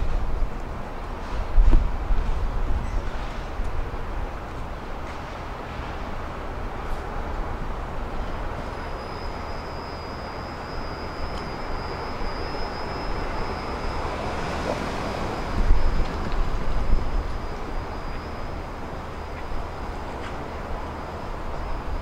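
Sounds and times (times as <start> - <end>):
approaching train rumble: 0.0 - 22.0
high-pitched whine: 6.8 - 22.0.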